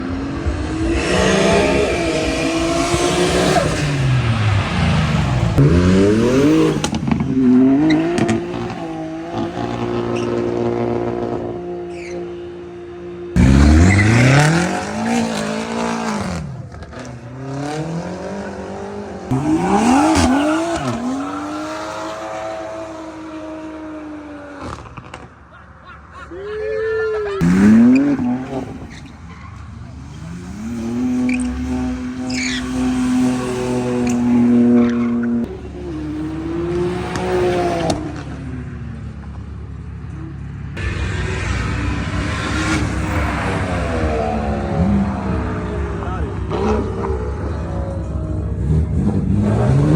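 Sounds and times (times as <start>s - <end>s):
car engine revving: 0.0s - 25.5s, 27.4s - 49.9s
tyre squeal: 7.7s - 9.0s, 9.6s - 10.8s, 11.8s - 12.6s, 13.4s - 15.4s, 26.6s - 36.3s.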